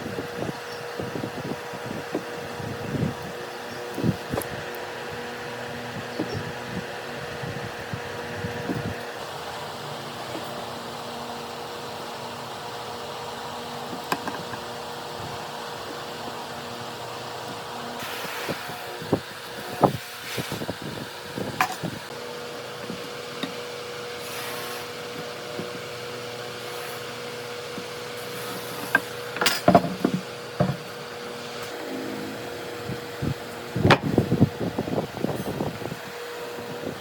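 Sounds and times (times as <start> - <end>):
steady fan hum: 0.0 - 37.0
wooden knocks and taps: 29.7 - 30.8.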